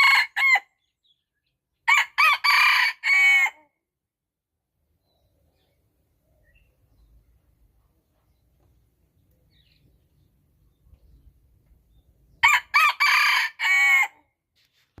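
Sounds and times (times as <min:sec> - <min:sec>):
rooster crowing: 0:01.9 - 0:03.6, 0:12.4 - 0:14.2.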